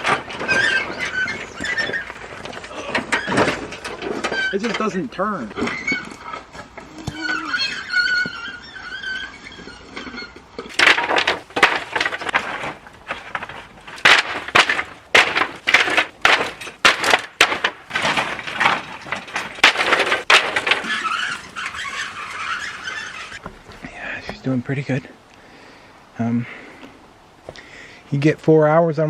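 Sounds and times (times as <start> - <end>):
wood pallets tumbling and clattering: 0.0 - 23.9.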